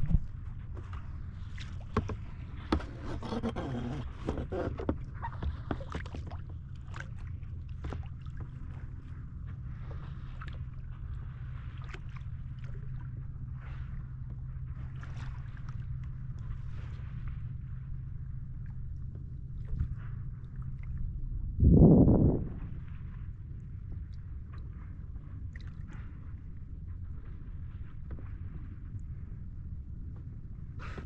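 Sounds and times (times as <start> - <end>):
steady low rumble: 0.0 - 3.1, 4.0 - 31.0
water splashing against kayak: 0.0 - 31.0.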